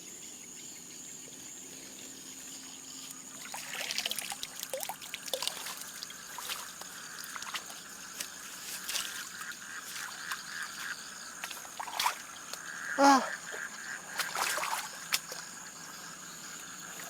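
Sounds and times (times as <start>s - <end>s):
high insect trill: 0.0s - 17.0s
shallow water splashing: 3.3s - 12.7s, 13.4s - 15.6s.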